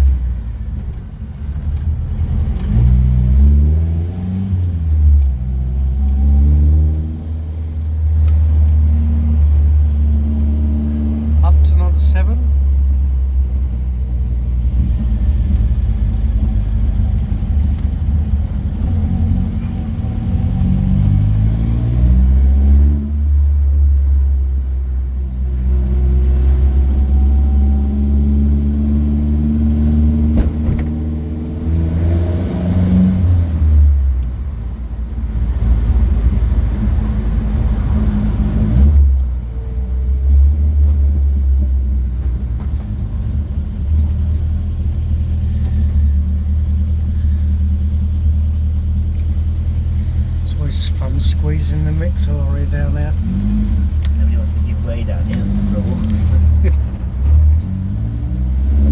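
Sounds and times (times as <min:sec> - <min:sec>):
car engine rumbling: 0:00.0 - 0:58.9.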